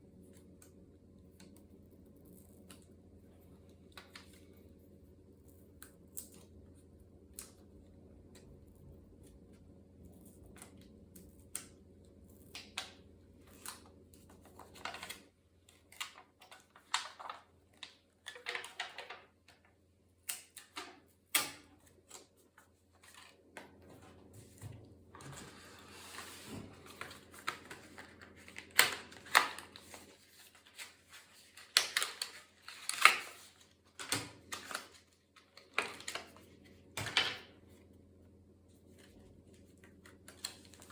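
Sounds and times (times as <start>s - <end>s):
faint steady hum: 0.0s - 40.9s
rustling or scraping: 24.4s - 28.0s.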